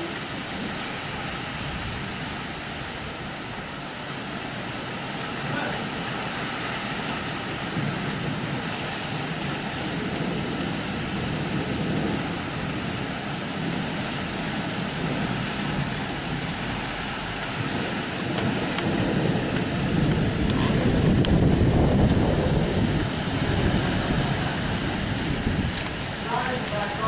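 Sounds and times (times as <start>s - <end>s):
steady rain falling: 0.0s - 27.0s
raindrop ticks: 7.0s - 10.4s, 11.6s - 16.7s, 17.4s - 23.0s, 25.6s - 27.0s.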